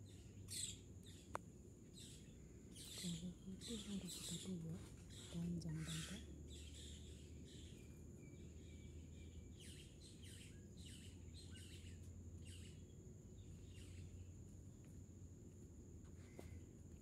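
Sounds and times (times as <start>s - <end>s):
small birds chirping: 0.0s - 17.0s
steady high-pitched hiss: 6.2s - 17.0s.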